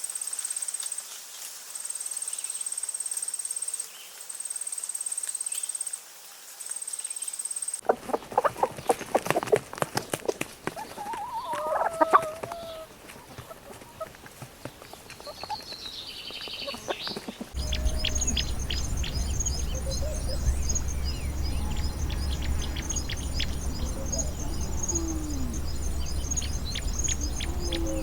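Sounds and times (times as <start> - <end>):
warbling bird call: 16.6 - 28.0.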